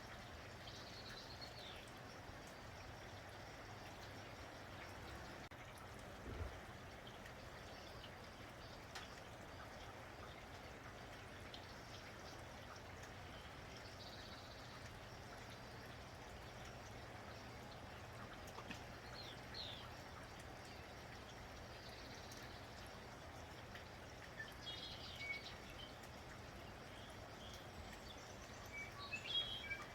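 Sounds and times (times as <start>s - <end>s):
faint drips: 0.0s - 29.9s
light rain pattering: 0.0s - 29.9s
bird chirps: 27.4s - 29.9s.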